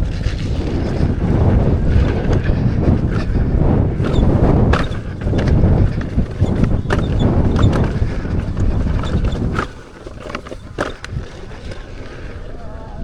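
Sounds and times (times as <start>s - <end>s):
tyre rumbling on dirt trail: 0.0s - 13.0s
wind buffeting the microphone: 0.0s - 13.0s
knocks and clatters: 4.0s - 11.2s.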